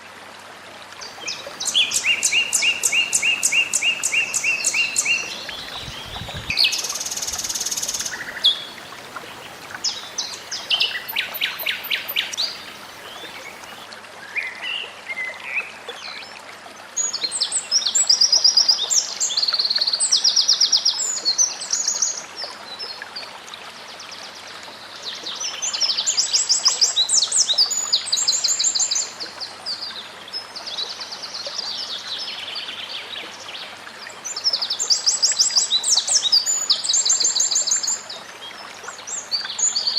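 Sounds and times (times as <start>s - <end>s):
flowing water rushing: 0.0s - 39.9s
songbird singing trills: 1.2s - 13.8s.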